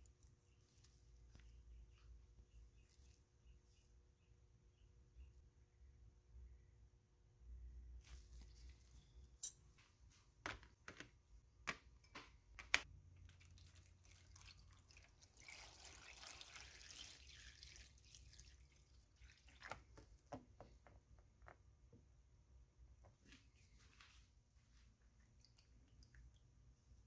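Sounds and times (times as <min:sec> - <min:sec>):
liquid dripping: 0:13.2 - 0:20.3, 0:25.0 - 0:26.8
liquid pouring and splashing: 0:13.2 - 0:20.3.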